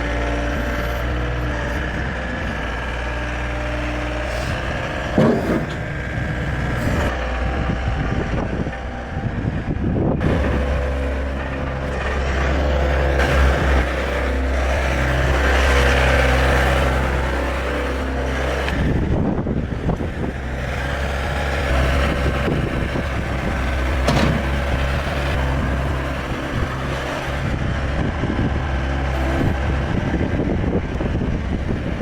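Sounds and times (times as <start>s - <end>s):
diesel engine running: 0.0s - 32.0s
machine rattling and knocking: 20.4s - 27.1s.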